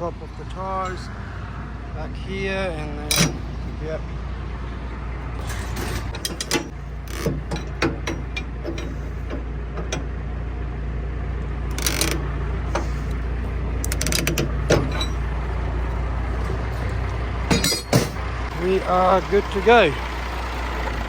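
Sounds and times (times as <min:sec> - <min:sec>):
metal rattles: 0:03.0 - 0:03.8, 0:05.3 - 0:10.1, 0:11.6 - 0:18.5
ratchet clicks: 0:11.7 - 0:13.2, 0:13.8 - 0:14.6.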